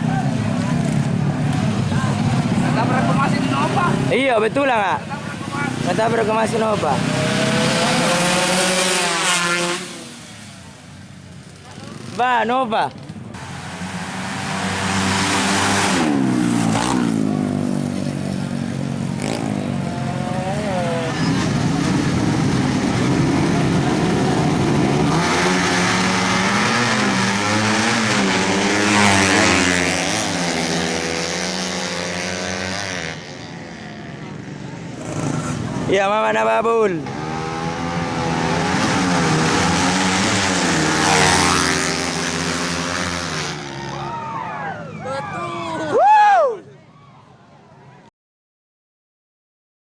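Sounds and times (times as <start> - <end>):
motorcycle engine revving hard: 5.4 - 10.5, 13.4 - 35.9, 37.0 - 44.0.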